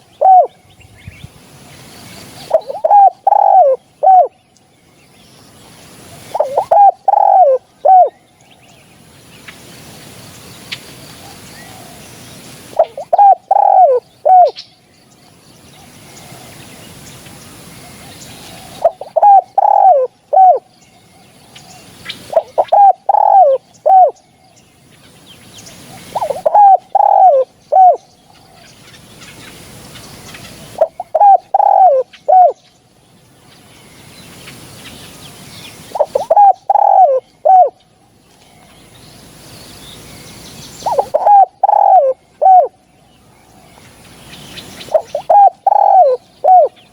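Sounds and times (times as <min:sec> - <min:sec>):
dove cooing: 0:00.0 - 0:00.6, 0:02.4 - 0:04.4, 0:06.1 - 0:08.2, 0:12.7 - 0:14.6, 0:17.8 - 0:20.7, 0:22.2 - 0:24.2, 0:25.9 - 0:28.7, 0:30.4 - 0:32.6, 0:35.9 - 0:37.8, 0:40.8 - 0:42.8, 0:44.8 - 0:46.9
faint hiss: 0:00.0 - 0:46.9.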